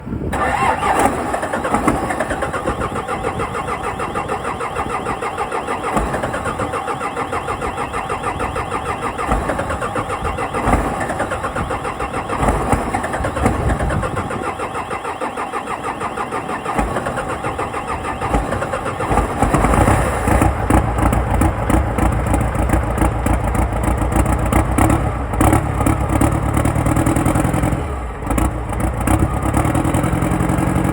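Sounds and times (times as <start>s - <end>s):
diesel engine cranking and starting: 0.0s - 30.9s.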